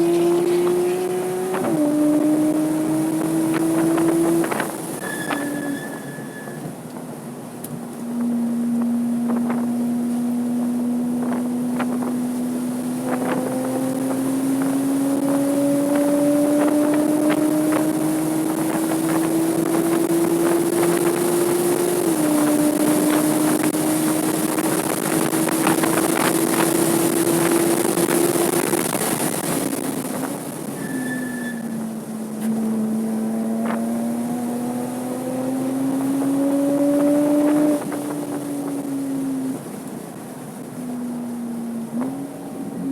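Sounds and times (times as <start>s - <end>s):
wind rushing: 0.0s - 5.5s
car engine accelerating: 0.0s - 6.0s, 6.6s - 42.9s.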